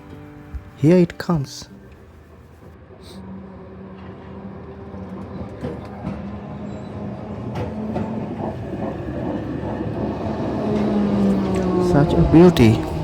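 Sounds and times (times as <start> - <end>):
tram humming: 0.0 - 13.0
tram wheels clacking on rails: 3.7 - 13.0.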